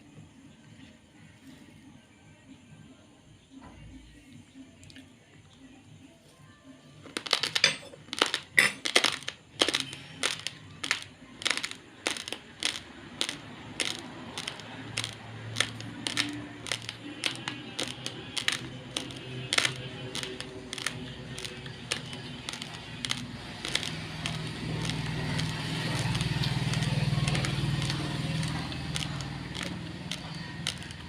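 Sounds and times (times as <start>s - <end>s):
dry rice crunched between teeth: 7.1s - 31.0s.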